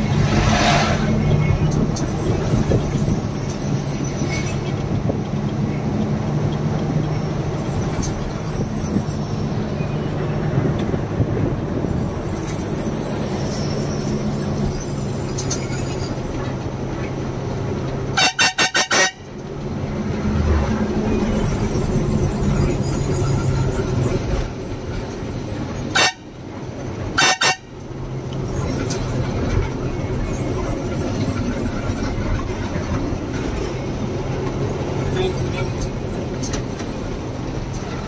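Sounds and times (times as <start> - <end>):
truck running with road noise: 0.0 - 38.0
truck horn short toots: 18.1 - 19.3, 25.9 - 26.3, 27.2 - 27.7.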